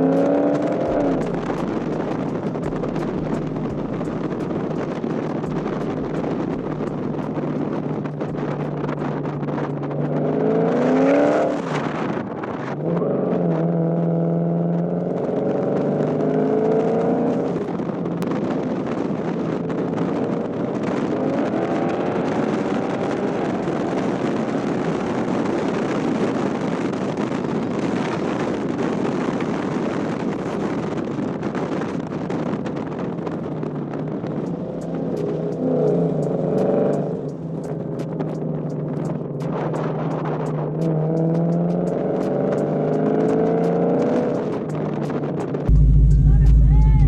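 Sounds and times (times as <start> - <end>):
car engine accelerating hard: 0.0 - 47.0
wind noise on microphone: 0.0 - 47.0.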